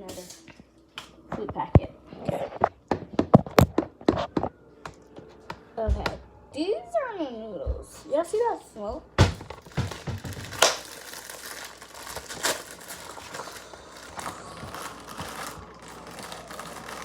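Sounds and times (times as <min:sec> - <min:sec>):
packet crinkling and rustling: 0:09.3 - 0:17.0.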